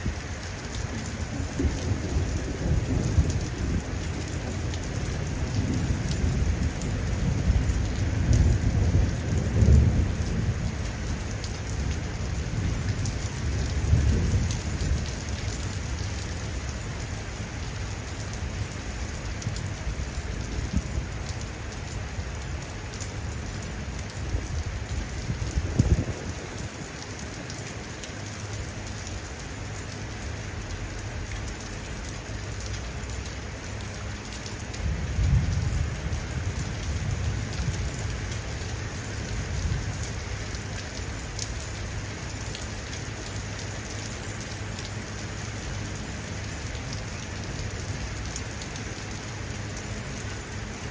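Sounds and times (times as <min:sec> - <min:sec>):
thunder rumbling: 0:00.0 - 0:16.1, 0:24.3 - 0:26.6, 0:34.8 - 0:40.2
steady rainfall: 0:00.0 - 0:50.9.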